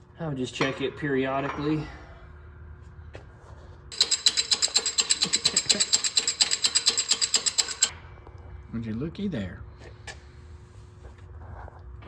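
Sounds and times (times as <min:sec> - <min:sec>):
ratchet clicking rapidly: 0:03.9 - 0:07.9.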